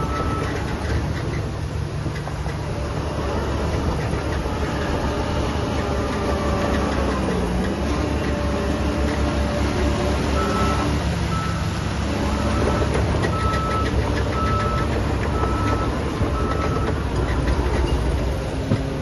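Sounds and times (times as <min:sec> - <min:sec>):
heavy machinery diesel engines: 0:00.0 - 0:19.0
reversing alarm beeping: 0:10.4 - 0:11.7, 0:12.4 - 0:17.0.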